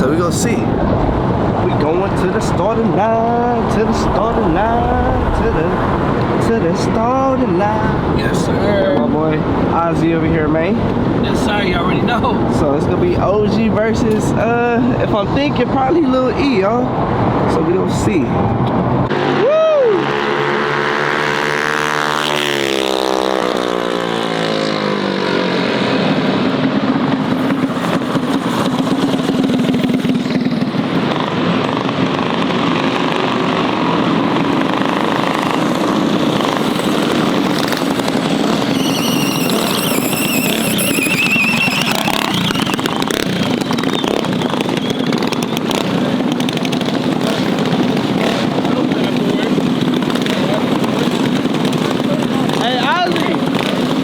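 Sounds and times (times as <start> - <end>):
mini bike engines revving: 7.7 - 15.3, 19.1 - 54.0
high wavering whine: 34.5 - 43.7.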